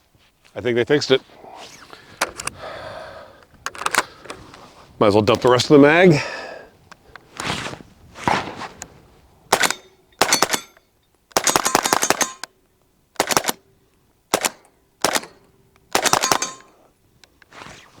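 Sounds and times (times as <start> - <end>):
pistol shots: 9.5 - 12.5, 13.2 - 13.6, 14.3 - 16.8.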